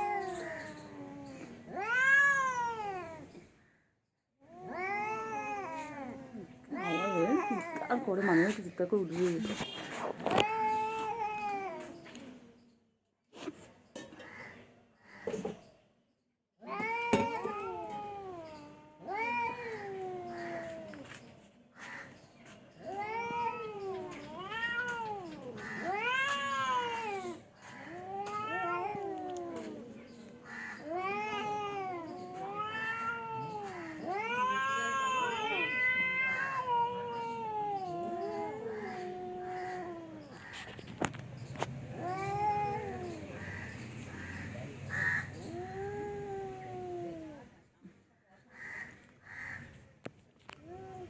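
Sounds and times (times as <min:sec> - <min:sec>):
cat meowing: 0:00.0 - 0:03.3, 0:04.6 - 0:08.5, 0:22.8 - 0:29.9, 0:30.5 - 0:40.5.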